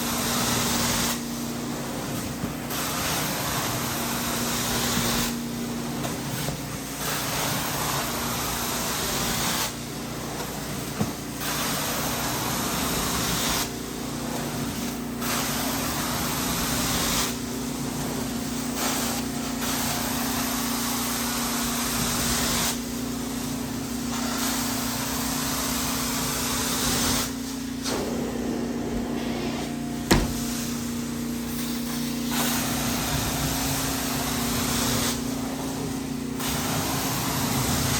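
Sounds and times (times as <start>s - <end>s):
carpet cleaning wand hissing: 24.2s - 37.9s.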